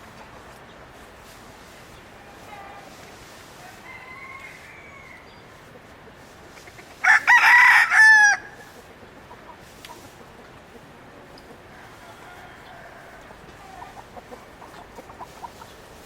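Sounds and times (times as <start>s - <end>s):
rooster crowing: 3.6s - 5.4s, 7.0s - 8.7s, 11.7s - 14.0s.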